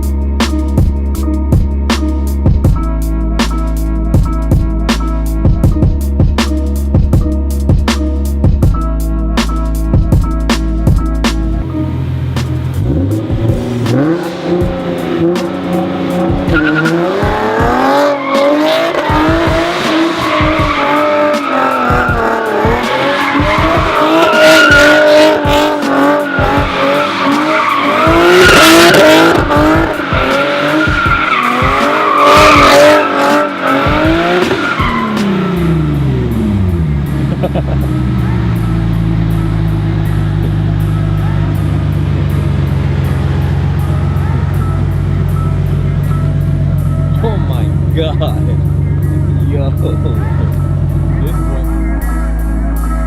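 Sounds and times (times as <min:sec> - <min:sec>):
car engine revving hard: 0:11.6 - 0:51.7
tyres squealing: 0:13.9 - 0:35.8.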